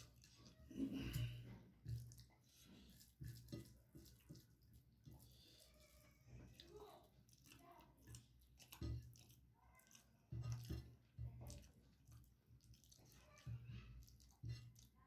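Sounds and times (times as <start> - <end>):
chewing and wet mouth sounds: 0.0 - 15.0.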